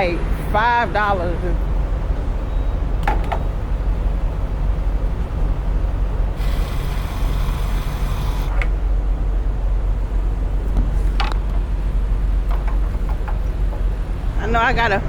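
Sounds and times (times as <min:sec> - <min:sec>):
semi truck idling: 0:00.0 - 0:15.0
air hiss: 0:06.4 - 0:08.6.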